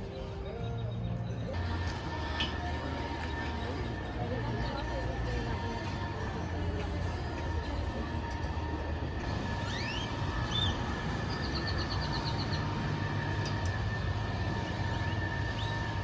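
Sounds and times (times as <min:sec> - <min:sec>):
low mechanical rumble: 0:00.0 - 0:16.0
bird chirps and trill: 0:09.6 - 0:12.9.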